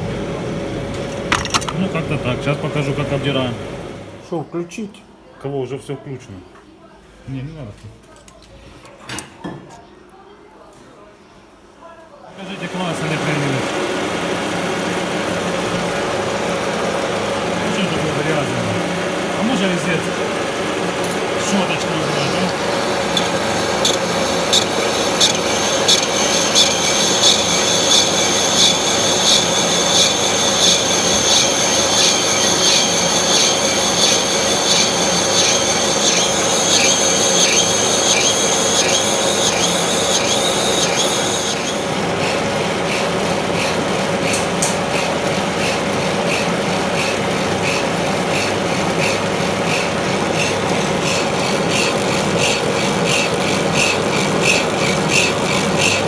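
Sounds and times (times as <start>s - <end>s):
lathe running tone: 12.4s - 56.0s
metallic cutting screech: 21.4s - 56.0s.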